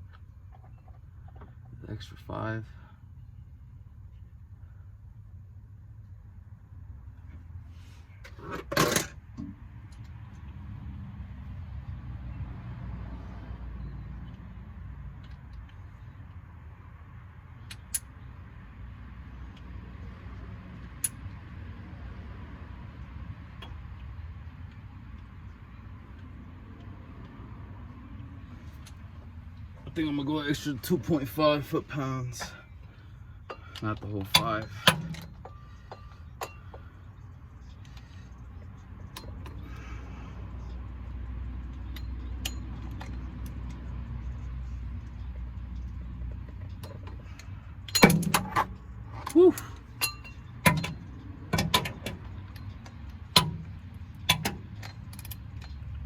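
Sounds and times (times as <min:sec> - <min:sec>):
metallic clicks of hand tools: 0:46.7 - 0:56.0.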